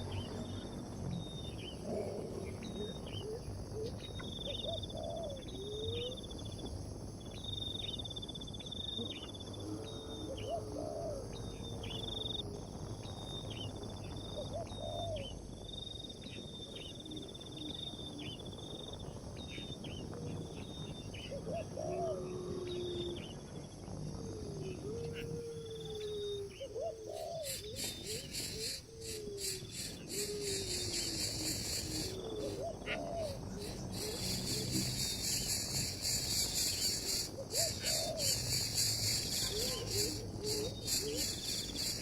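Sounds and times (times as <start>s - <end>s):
steady background noise: 0.0s - 42.0s
lower chirping calls: 25.1s - 42.0s.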